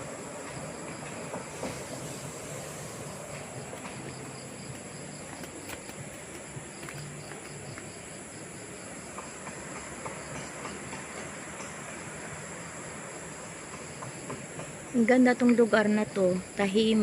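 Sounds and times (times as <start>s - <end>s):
river flowing: 0.0s - 9.2s
insect chirping: 0.0s - 17.0s.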